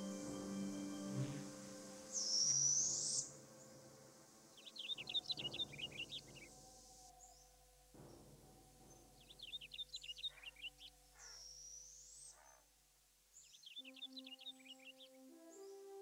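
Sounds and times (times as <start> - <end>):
bird whistle: 0.0 - 3.8
soft sustained music tones: 0.0 - 16.0
songbirds chirping: 0.0 - 16.0.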